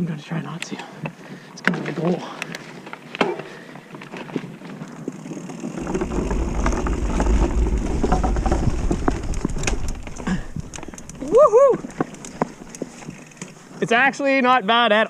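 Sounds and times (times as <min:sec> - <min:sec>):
bike tyres rattling over planks: 0:03.9 - 0:13.9
wind rumble on microphone: 0:05.8 - 0:13.4.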